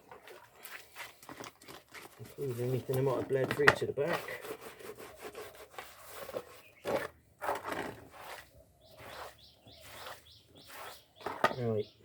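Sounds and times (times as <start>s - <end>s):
rough scrapes: 0.3s - 11.6s
small birds chirping: 6.4s - 7.1s, 8.4s - 12.0s.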